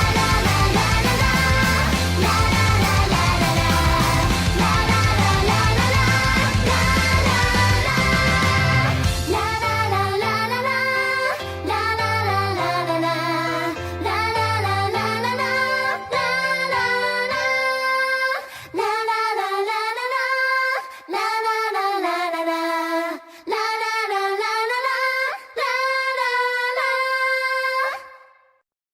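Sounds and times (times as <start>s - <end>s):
low band backing: 0.0s - 9.4s
women singing pop song: 0.0s - 28.3s.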